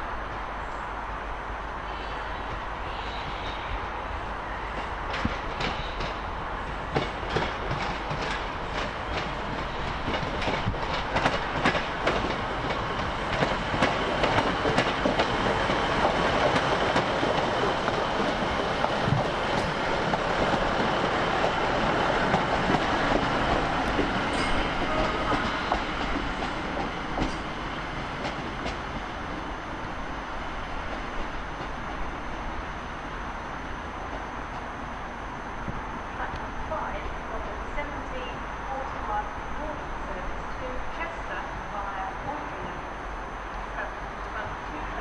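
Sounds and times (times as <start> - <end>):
train wheels clicking over rail joints: 6.9 - 29.1.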